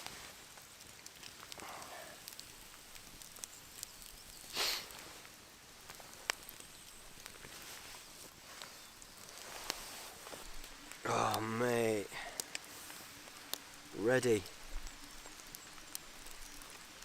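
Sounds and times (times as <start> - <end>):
egg frying in oil: 0.0 - 7.6, 12.1 - 17.0
campfire crackling: 0.0 - 17.0.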